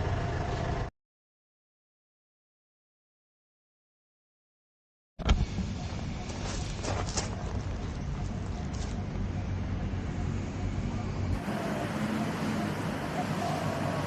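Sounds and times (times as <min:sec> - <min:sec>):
road traffic rumble: 0:00.0 - 0:00.9, 0:05.2 - 0:14.0.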